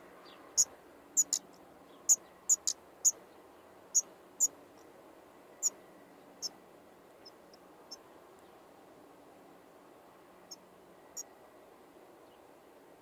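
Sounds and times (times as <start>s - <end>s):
nestlings cheeping: 0.6s - 1.4s, 2.1s - 3.2s.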